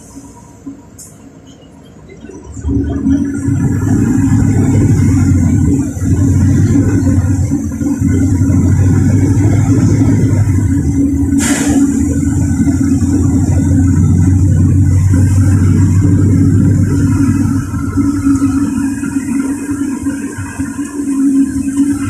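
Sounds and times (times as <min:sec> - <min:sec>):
bus engine running: 0:00.0 - 0:22.0
compressed air hiss: 0:11.4 - 0:12.0.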